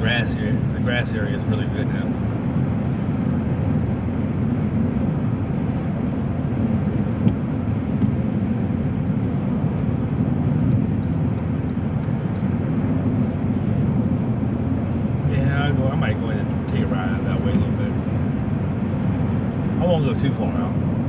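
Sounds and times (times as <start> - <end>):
car interior driving rumble: 0.0 - 21.0.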